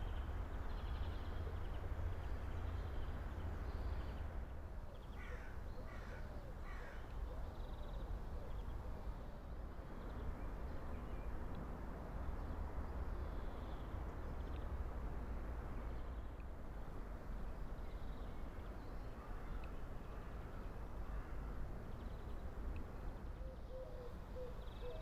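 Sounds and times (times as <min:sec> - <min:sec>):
crow cawing: 0:05.2 - 0:07.0.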